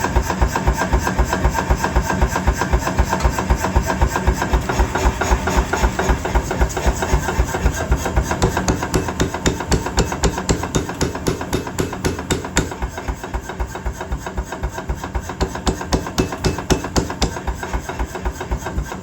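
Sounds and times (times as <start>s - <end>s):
power hammer blows on metal: 7.3s - 13.3s, 15.3s - 18.0s.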